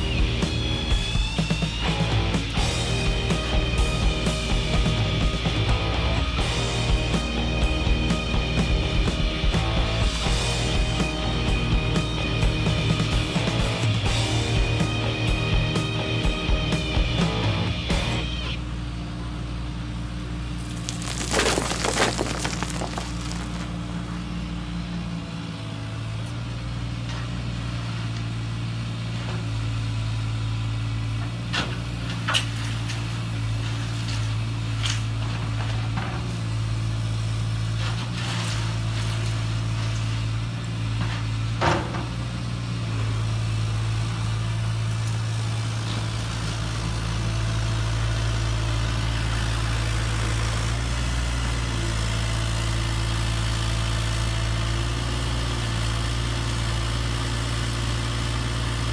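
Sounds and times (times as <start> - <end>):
low engine-like hum: 0.0 - 10.4.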